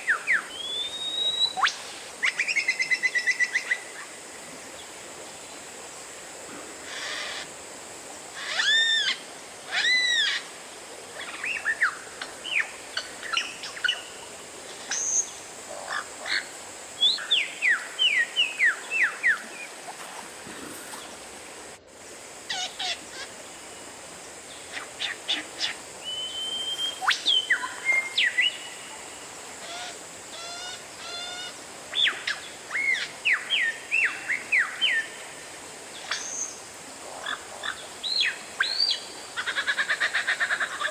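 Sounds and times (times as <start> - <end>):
songbird whistling and chirping: 0.4 - 2.9, 26.1 - 28.6.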